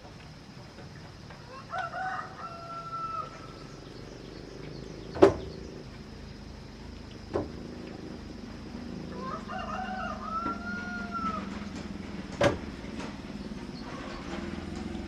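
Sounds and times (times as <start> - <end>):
rooster crowing: 1.5 - 3.8, 9.0 - 12.1
sharp knocks: 5.2 - 5.5, 7.3 - 7.6.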